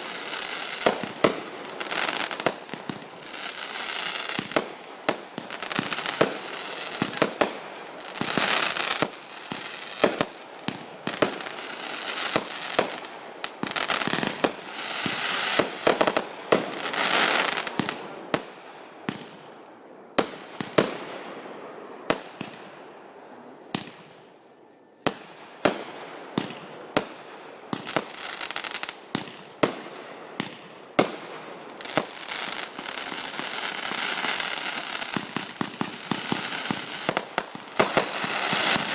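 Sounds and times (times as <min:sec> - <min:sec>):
fireworks crackling and hissing: 0:00.0 - 0:22.6, 0:25.0 - 0:38.9
firework bangs: 0:25.1 - 0:38.9.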